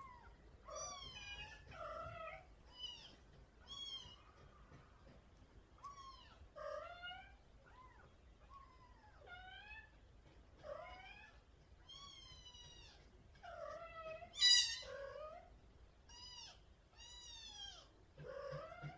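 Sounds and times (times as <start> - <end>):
cat meowing: 10.6 - 15.5.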